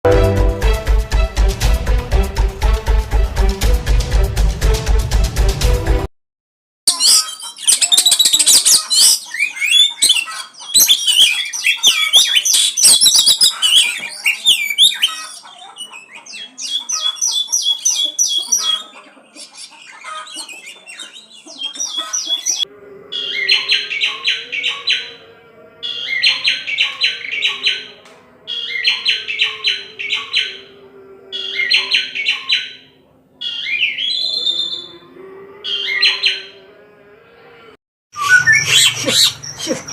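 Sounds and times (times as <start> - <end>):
bird singing: 6.9 - 36.6, 38.2 - 39.9.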